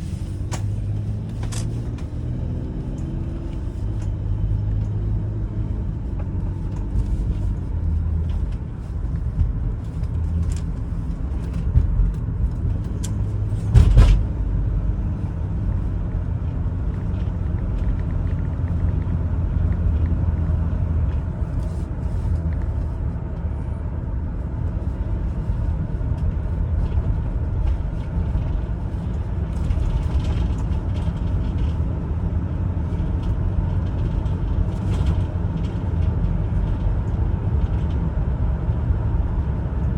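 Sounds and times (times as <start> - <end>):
minivan engine and tyres rumbling: 0.0 - 39.9
sharp thump: 13.6 - 14.4.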